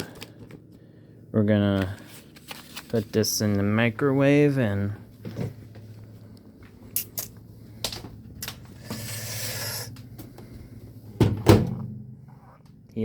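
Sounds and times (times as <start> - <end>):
low steady hum: 0.0 - 13.0
microwave door shutting: 11.2 - 12.0.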